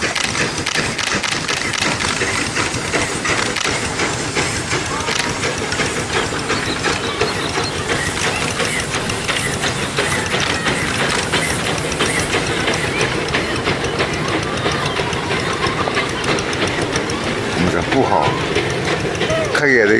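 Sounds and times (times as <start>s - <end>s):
train wheel squeals: 0.0s - 19.9s
train wheels rattling: 0.0s - 19.9s.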